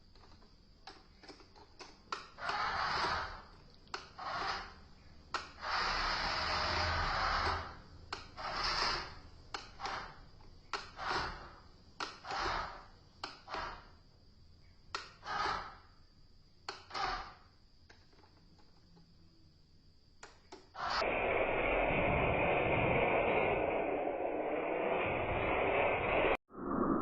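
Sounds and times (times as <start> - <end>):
plastic clicks and knocks: 0.1 - 2.4.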